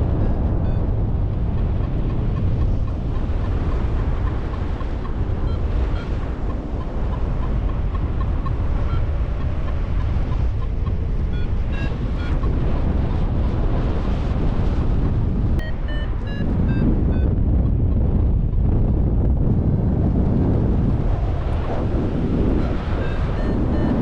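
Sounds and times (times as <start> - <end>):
variometer electronic beeps: 0.0 - 1.0, 1.6 - 12.7, 15.6 - 17.9, 22.5 - 24.0
wind buffeting microphone: 0.0 - 24.0.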